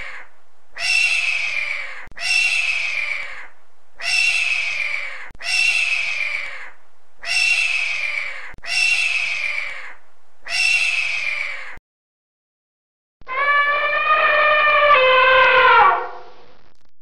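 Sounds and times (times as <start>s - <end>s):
eagle screaming: 0.0s - 11.8s, 13.2s - 16.3s.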